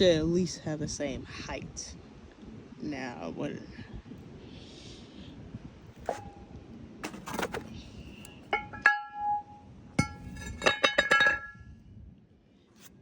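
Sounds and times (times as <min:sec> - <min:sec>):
metal rotor knocking and ringing: 0:08.6 - 0:11.6.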